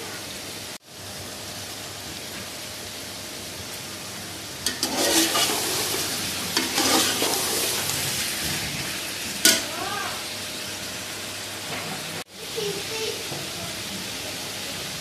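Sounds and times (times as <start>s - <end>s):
chicken sizzling in a pot: 0.0s - 15.0s
metal spoon stirring: 4.7s - 7.9s
spoon clanking against pot: 9.4s - 9.7s.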